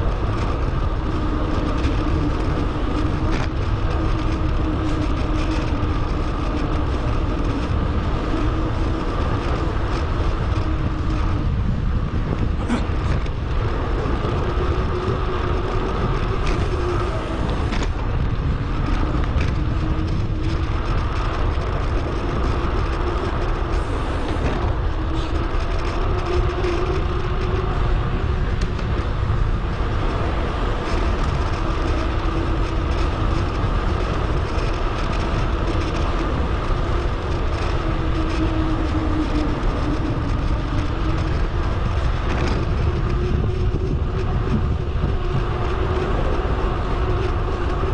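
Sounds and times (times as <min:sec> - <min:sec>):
tyre and road noise: 0:00.0 - 0:47.9
wind rush: 0:00.0 - 0:47.9.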